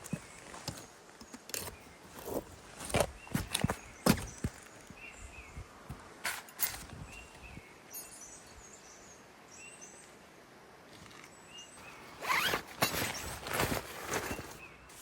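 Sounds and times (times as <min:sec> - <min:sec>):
zipper pulled: 0:12.2 - 0:14.6.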